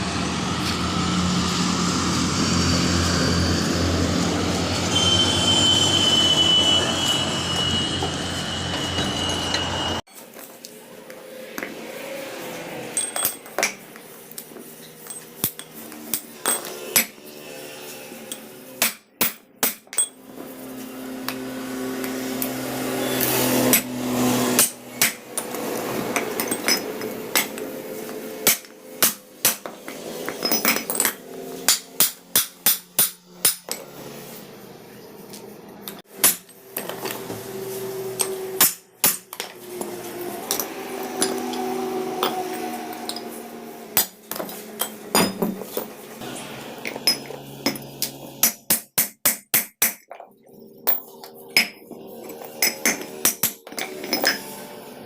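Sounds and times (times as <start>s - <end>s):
hammer striking steel: 28.4s - 33.8s, 38.1s - 39.5s, 46.2s - 50.1s.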